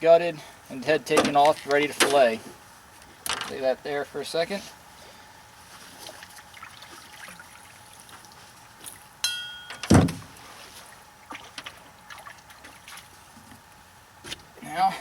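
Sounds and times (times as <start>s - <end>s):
short metallic ring: 9.2s - 10.0s
heavy thump: 9.9s - 10.3s.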